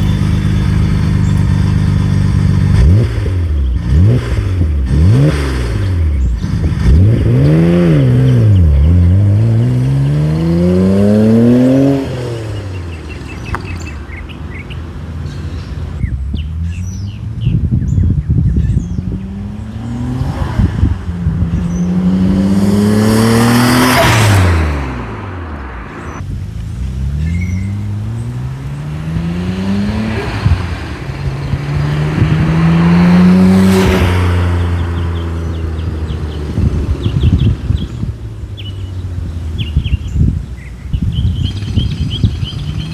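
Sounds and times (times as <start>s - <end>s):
car accelerating past: 18.8s - 39.0s.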